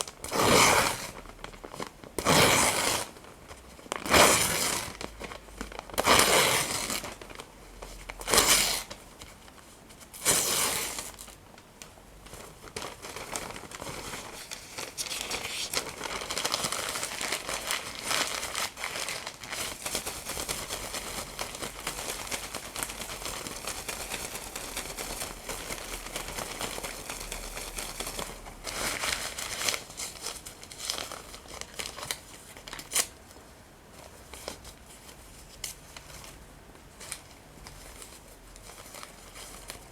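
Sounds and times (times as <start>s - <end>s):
paper crinkling and crumpling: 0.0s - 39.9s
paper ripping: 12.7s - 33.1s.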